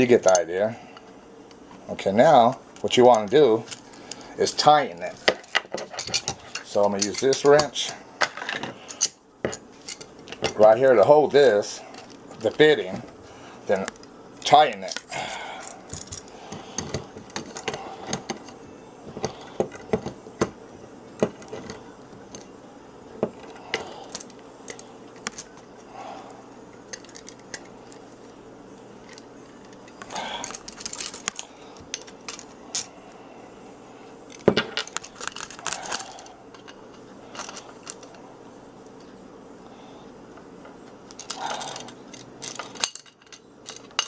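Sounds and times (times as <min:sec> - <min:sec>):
wrenches clinking on metal fitting: 0:00.0 - 0:00.5, 0:02.3 - 0:07.9.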